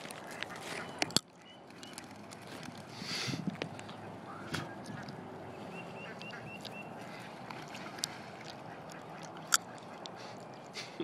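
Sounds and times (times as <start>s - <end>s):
birds calling: 0.0s - 11.0s.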